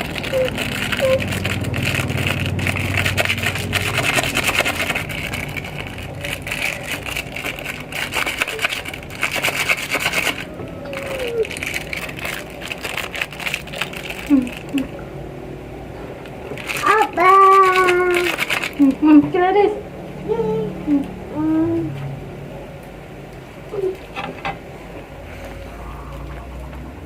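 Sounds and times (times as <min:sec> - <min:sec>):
scraping and rubbing strokes: 0:00.0 - 0:13.5.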